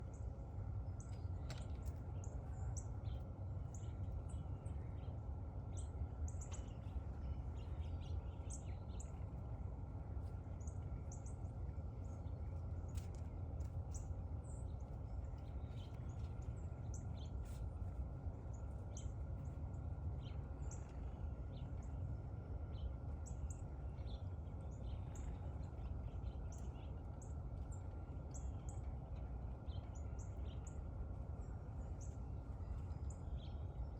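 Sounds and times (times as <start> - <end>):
low background rumble: 0.0 - 33.9
small birds chirping: 0.1 - 9.6, 10.2 - 22.0.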